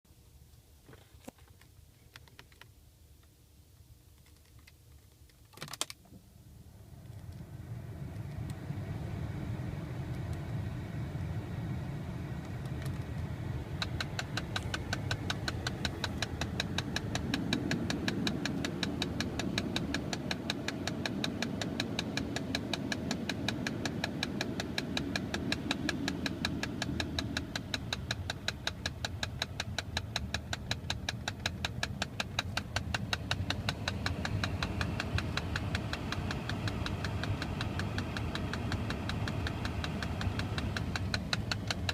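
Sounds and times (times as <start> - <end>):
car engine running: 6.5 - 41.9
rapid regular clicking: 12.6 - 41.9.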